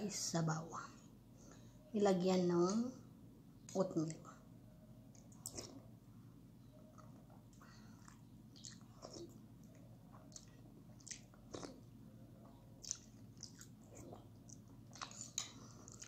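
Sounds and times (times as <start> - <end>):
soft chewing and mouth smacks: 5.1 - 5.9, 6.6 - 16.0.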